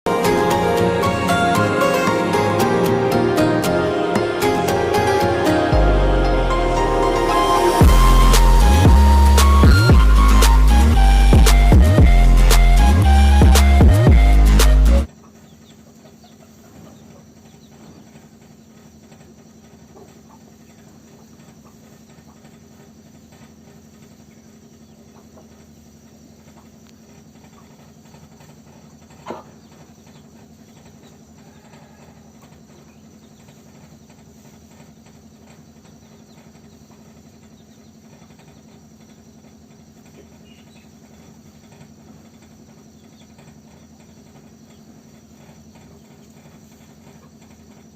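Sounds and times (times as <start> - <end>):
low steady hum: 0.1 - 47.9
insects chirping: 15.1 - 47.9.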